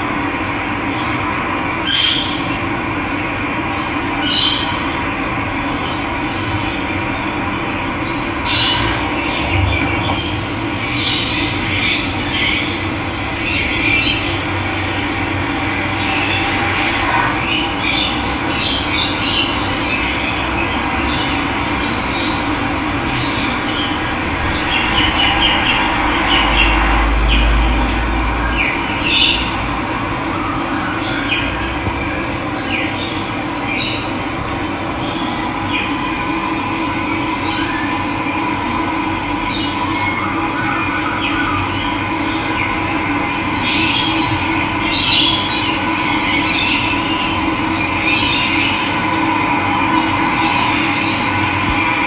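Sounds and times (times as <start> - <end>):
low rumble: 8.8 - 12.2, 22.4 - 30.0, 32.4 - 38.2
water rushing: 34.1 - 37.6.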